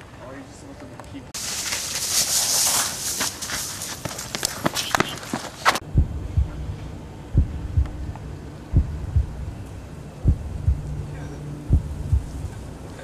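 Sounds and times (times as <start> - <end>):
rustling: 1.4 - 5.8
heartbeat thumps: 5.8 - 9.6, 10.2 - 12.7
low steady hum: 5.8 - 13.0.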